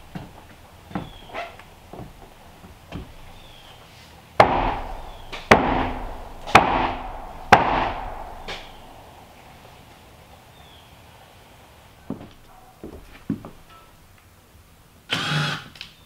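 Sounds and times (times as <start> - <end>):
tool striking wood: 4.4 - 8.9.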